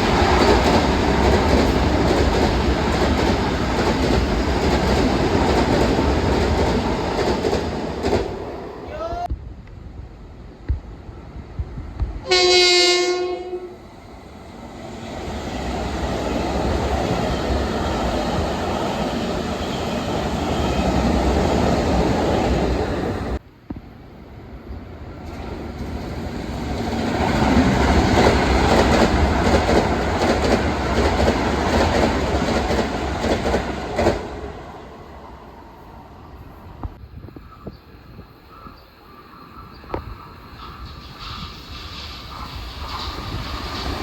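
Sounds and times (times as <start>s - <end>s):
train wheels rumbling on rail: 0.0s - 44.0s
train horn blast: 12.2s - 13.8s.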